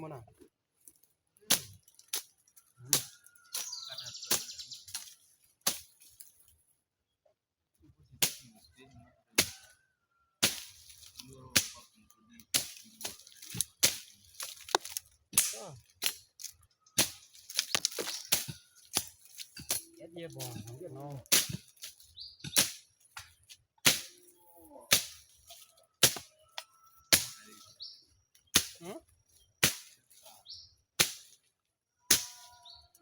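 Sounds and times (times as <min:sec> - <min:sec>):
hand tools chopping and digging: 0:01.5 - 0:06.3, 0:09.4 - 0:09.8, 0:10.4 - 0:24.2, 0:24.9 - 0:26.4, 0:27.1 - 0:27.5, 0:28.5 - 0:29.0, 0:29.6 - 0:30.2, 0:31.0 - 0:31.4, 0:32.1 - 0:32.6.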